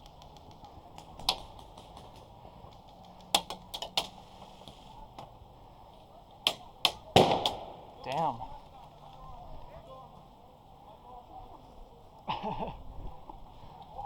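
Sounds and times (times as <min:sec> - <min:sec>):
airsoft gun shots: 0:06.5 - 0:08.4.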